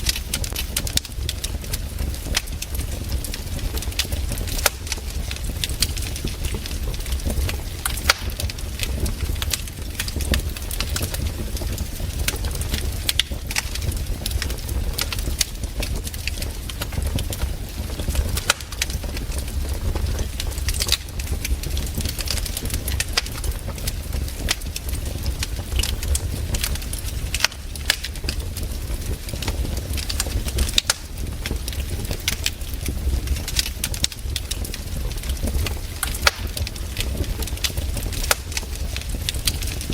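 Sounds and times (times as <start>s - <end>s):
campfire crackling: 0.0s - 39.9s
sharp pops and snaps: 3.7s - 19.4s, 25.5s - 28.4s, 29.3s - 34.7s, 35.3s - 39.9s.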